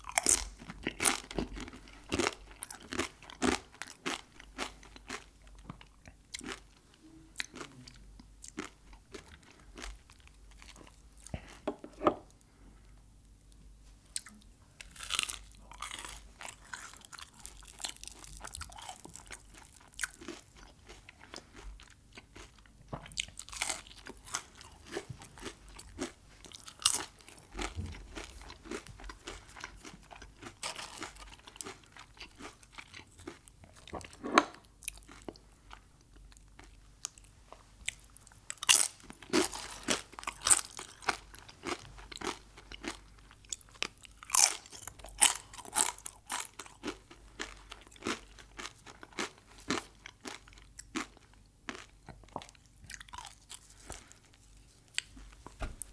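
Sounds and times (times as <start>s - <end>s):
crunchy food chewing: 0.0s - 6.8s, 7.4s - 11.6s, 14.1s - 55.9s.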